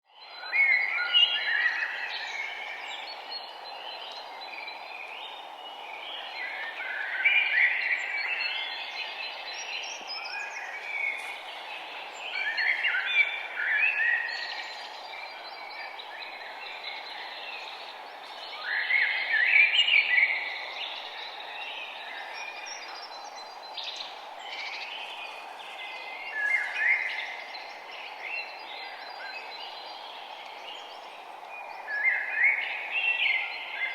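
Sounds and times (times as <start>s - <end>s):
loud warbled bird song: 0.1s - 33.9s
songbirds singing: 0.1s - 33.9s.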